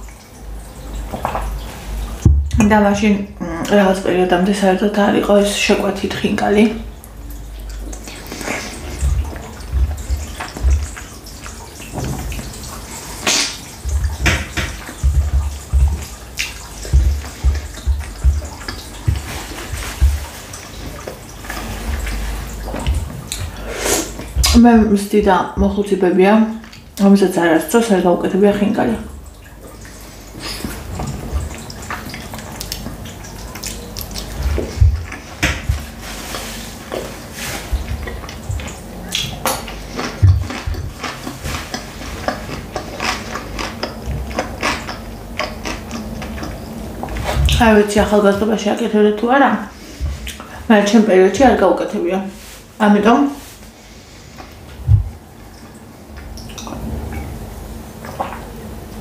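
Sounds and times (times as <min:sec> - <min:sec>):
wet chewing: 0:07.3 - 0:24.7, 0:29.6 - 0:48.1
low chewing thuds: 0:07.6 - 0:25.9, 0:29.6 - 0:48.5.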